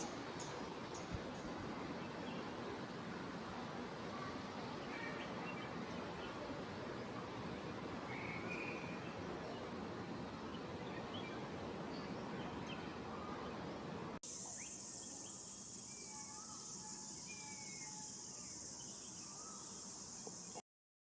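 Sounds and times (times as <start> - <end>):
high-pitched insect drone: 14.3 - 20.6
bird chirps: 14.4 - 20.6.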